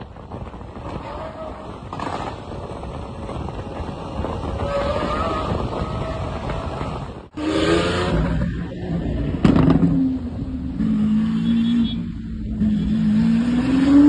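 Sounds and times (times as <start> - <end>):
wind on microphone: 0.0 - 10.8.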